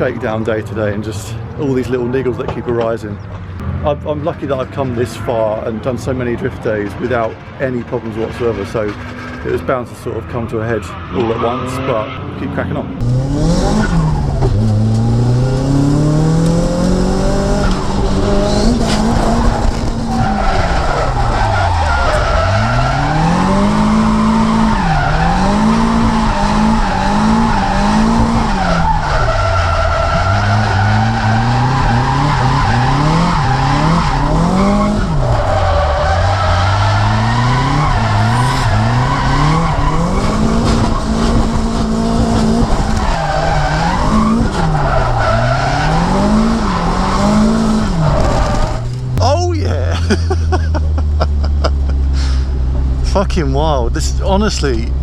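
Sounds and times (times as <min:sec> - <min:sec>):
car engine revving hard: 0:13.0 - 0:49.2
tyres squealing: 0:18.4 - 0:41.2, 0:42.8 - 0:53.2.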